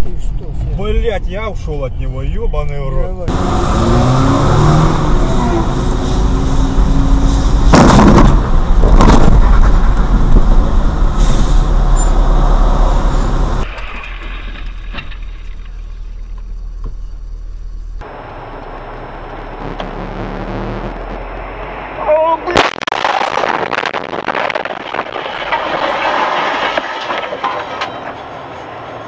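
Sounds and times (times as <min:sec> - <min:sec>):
car engine and road noise: 0:00.0 - 0:29.0
loud bangs: 0:07.2 - 0:10.8.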